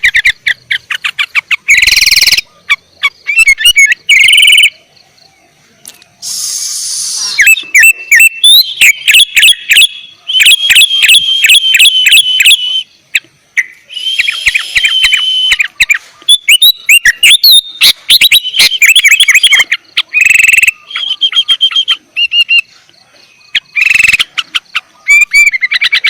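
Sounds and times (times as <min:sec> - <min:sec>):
bulbul singing whistled phrases: 0:00.0 - 0:26.0
harsh hissy bird note: 0:06.2 - 0:07.5.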